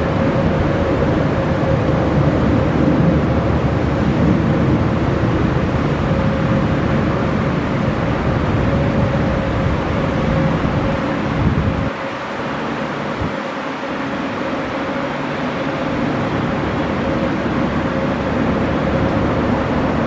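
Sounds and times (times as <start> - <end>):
jet engine rumble and whine: 0.0 - 20.0.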